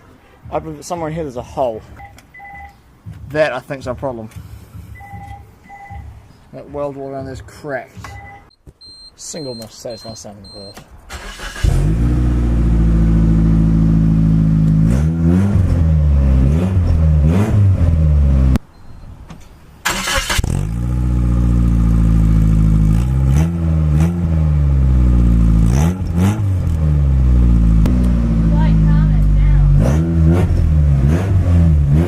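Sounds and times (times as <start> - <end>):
car engine revving: 11.1 - 18.6, 19.9 - 32.0.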